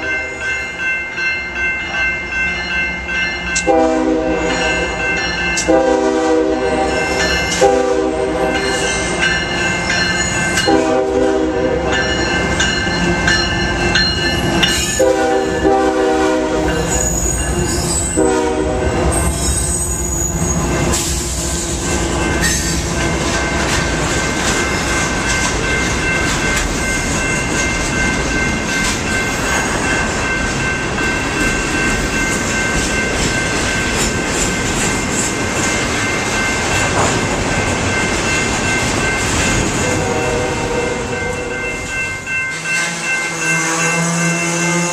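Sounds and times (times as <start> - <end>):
train rumbling past: 0.0 - 44.9
locomotive air horn blasts: 3.6 - 4.9, 5.6 - 8.6, 10.6 - 11.8, 15.0 - 16.9, 18.1 - 19.2, 39.8 - 41.1
steel wheel squeal: 16.9 - 18.2, 19.1 - 23.1.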